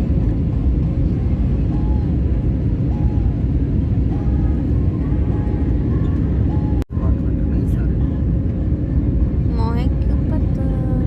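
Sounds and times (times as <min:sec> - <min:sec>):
airliner engine roar: 0:00.0 - 0:11.0.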